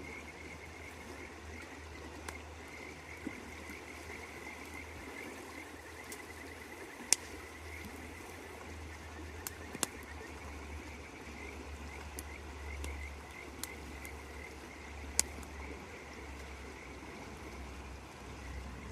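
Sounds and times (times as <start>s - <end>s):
frogs calling: 0.0s - 18.9s
campfire pops: 7.0s - 8.0s, 9.4s - 10.2s, 11.9s - 15.7s.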